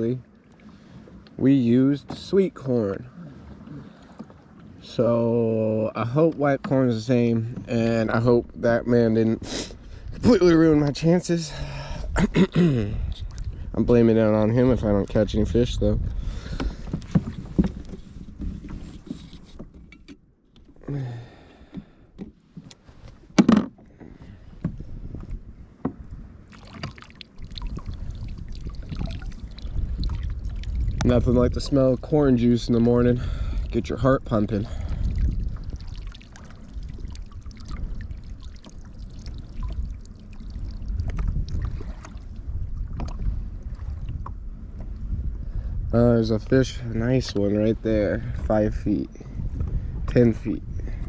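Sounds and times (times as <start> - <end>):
water lapping against kayak hull: 0.0 - 12.3, 12.9 - 46.0, 49.1 - 51.0
knocks of gear in a kayak: 16.5 - 20.8, 21.7 - 24.0
low hum: 24.0 - 46.8
small drips and clicks: 26.5 - 31.2, 35.0 - 43.2
low rumble: 27.4 - 51.0.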